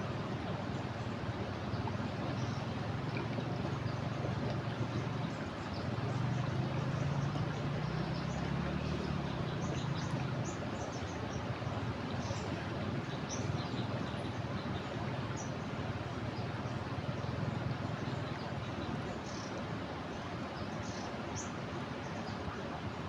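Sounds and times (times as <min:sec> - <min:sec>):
low motor hum: 0:00.0 - 0:19.1
river rushing: 0:00.0 - 0:23.0
small birds chirping: 0:01.6 - 0:15.6.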